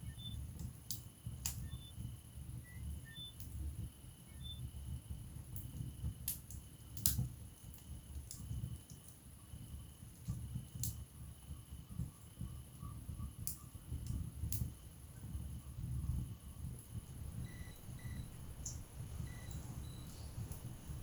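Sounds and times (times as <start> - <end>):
wood fire crackling and popping: 5.4 - 9.3, 10.0 - 11.2, 13.4 - 14.8, 15.8 - 21.0.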